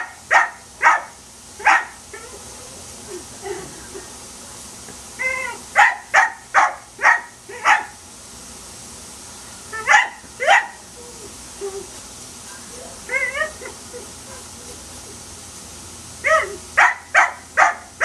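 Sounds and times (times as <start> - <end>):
dog barking sharply: 0.0 - 2.0, 5.8 - 8.0, 16.8 - 18.0
dog yelping: 0.0 - 2.9, 5.2 - 7.9, 9.8 - 11.3, 12.8 - 15.0, 16.2 - 18.0.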